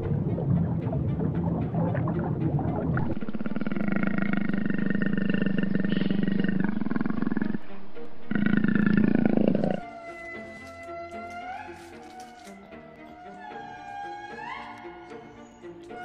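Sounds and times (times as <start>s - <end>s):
large animal roaring: 3.1s - 9.9s
soft music with held notes: 7.7s - 16.0s.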